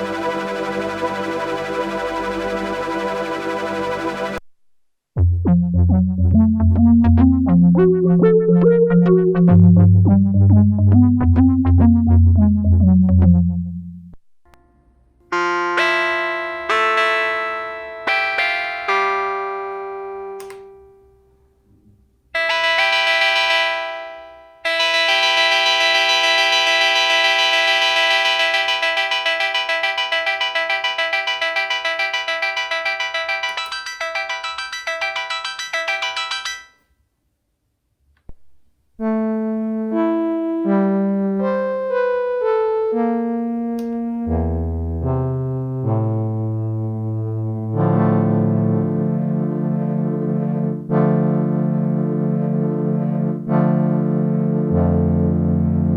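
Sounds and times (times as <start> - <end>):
held synth note with pulsing ripple: 0.0 - 4.4
synthesizer bell-like notes: 0.0 - 4.4, 24.7 - 36.8
synthesizer electric piano chords: 0.0 - 4.4, 5.2 - 14.2, 20.2 - 20.8, 24.7 - 36.7, 39.0 - 55.9
low bass notes: 5.2 - 14.2, 43.1 - 55.9.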